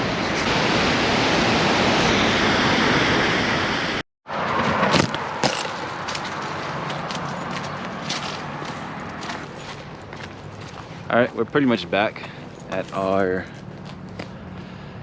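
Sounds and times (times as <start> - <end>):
waterfall rushing: 0.0 - 4.0
outdoor noise: 0.0 - 15.0.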